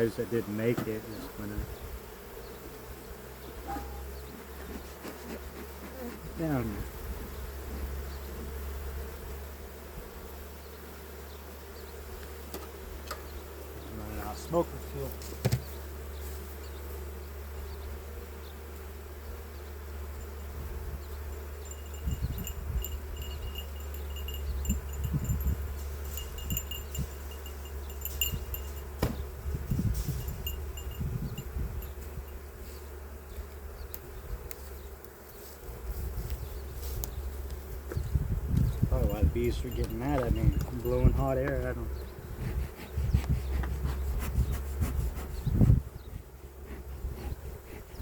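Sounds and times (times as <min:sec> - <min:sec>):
honey bees buzzing: 0:00.0 - 0:48.0
faint high ringing tones: 0:21.3 - 0:29.0, 0:29.7 - 0:32.5, 0:39.0 - 0:41.8.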